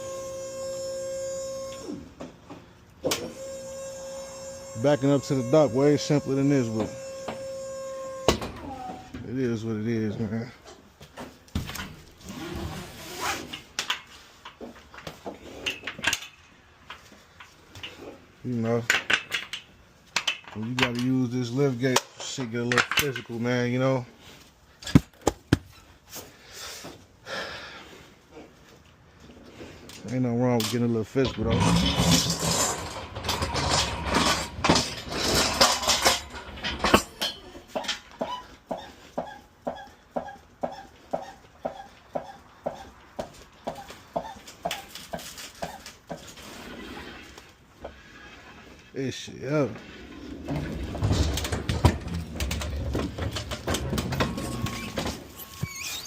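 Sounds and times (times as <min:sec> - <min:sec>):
metal clanks and knocks: 0:30.6 - 0:46.3, 0:50.4 - 0:55.6
scraping rub: 0:31.4 - 0:36.0, 0:45.2 - 0:48.9.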